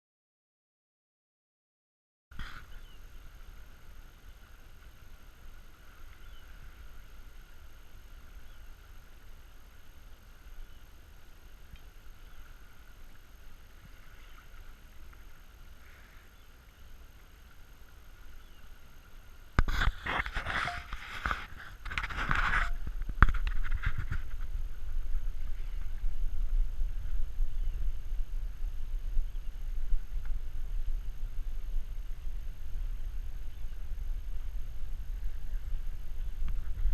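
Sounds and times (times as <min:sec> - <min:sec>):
water noise: 0:02.3 - 0:36.9
wind: 0:02.3 - 0:36.9
wind buffeting microphone: 0:19.6 - 0:36.9.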